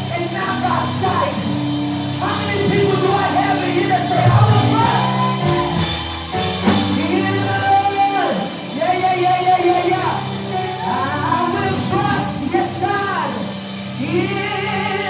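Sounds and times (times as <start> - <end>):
keyboard chords: 0.0 - 15.0
person singing: 14.0 - 15.0.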